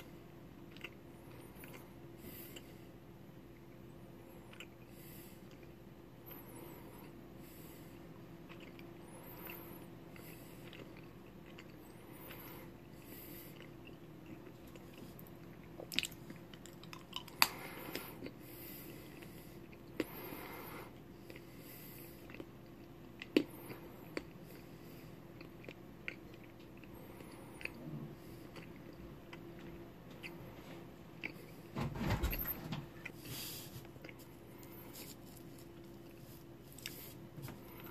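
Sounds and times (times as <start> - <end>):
person chewing a crayon: 0.0 - 31.6, 33.0 - 37.9
soft breathing: 4.2 - 8.3, 17.4 - 22.4, 26.8 - 29.0.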